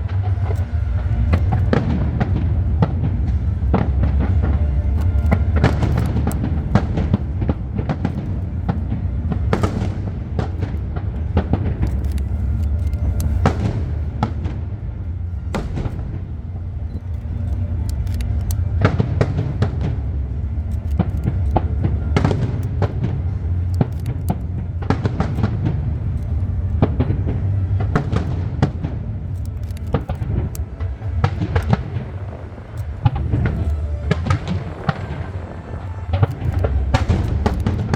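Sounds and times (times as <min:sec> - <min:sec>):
low rumble: 0:00.0 - 0:37.9
fireworks bangs and cracks: 0:05.5 - 0:12.0.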